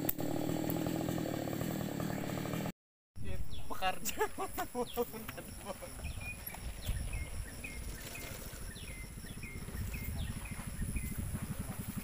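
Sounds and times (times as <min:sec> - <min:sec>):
bird chirping: 0:03.2 - 0:11.4
low uneven rumble: 0:06.7 - 0:12.0.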